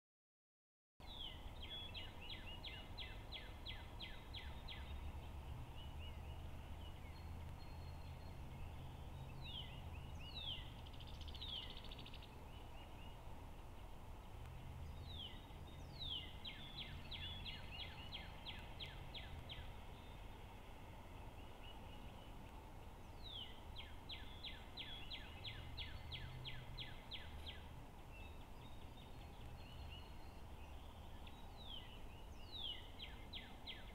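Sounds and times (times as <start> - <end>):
songbird trilling: 1.0 - 13.3, 14.8 - 20.3, 23.0 - 33.9.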